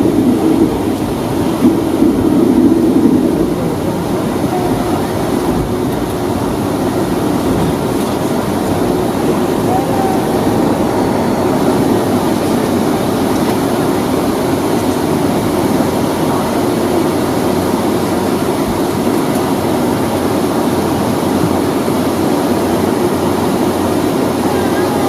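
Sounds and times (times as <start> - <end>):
aircraft cabin engine rumble: 0.0 - 25.0.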